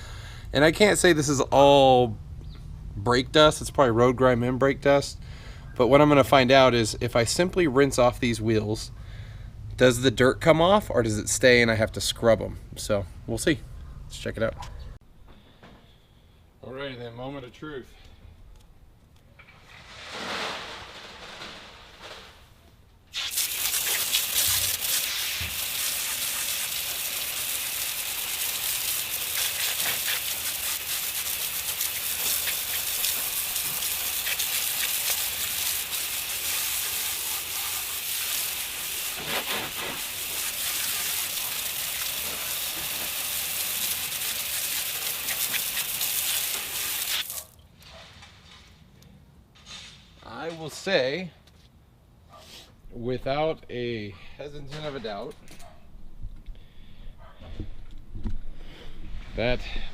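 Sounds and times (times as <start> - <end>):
water jet spraying on car wheel: 23.1 - 47.4.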